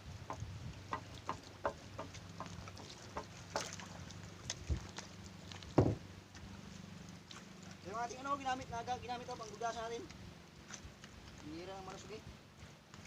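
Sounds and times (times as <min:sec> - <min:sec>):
knocks on wooden boat: 0:00.2 - 0:03.8, 0:05.7 - 0:06.1
heavy thump: 0:05.8 - 0:06.0.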